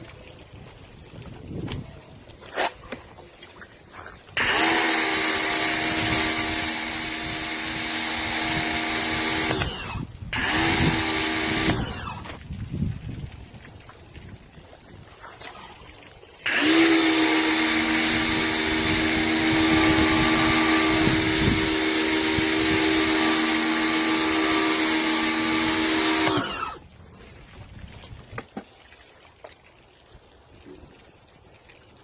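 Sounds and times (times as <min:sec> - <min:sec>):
pressure washer motor hum: 0:04.4 - 0:12.2, 0:16.4 - 0:26.8
water spray hiss: 0:04.4 - 0:12.9, 0:16.4 - 0:26.8.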